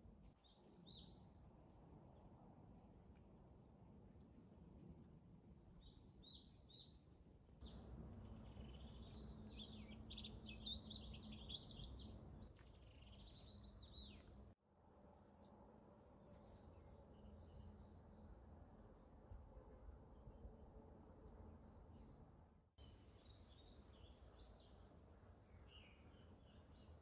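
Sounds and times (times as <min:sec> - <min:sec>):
birds singing: 0:07.6 - 0:14.4.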